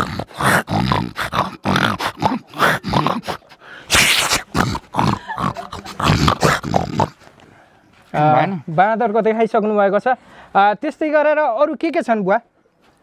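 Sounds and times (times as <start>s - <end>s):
man imitating monkey calls: 0.0s - 7.3s.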